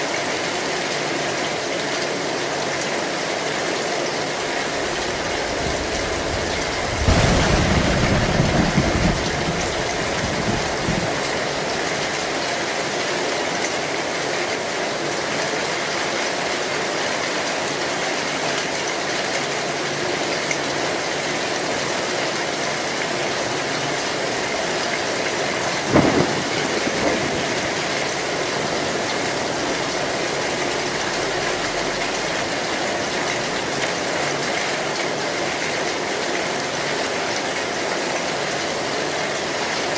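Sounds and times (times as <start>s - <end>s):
heavy rain on a metal roof: 0.0s - 39.9s
low rumble of thunder: 4.8s - 12.4s, 24.8s - 33.4s
sharp thunderclap: 4.8s - 12.4s, 25.2s - 30.2s.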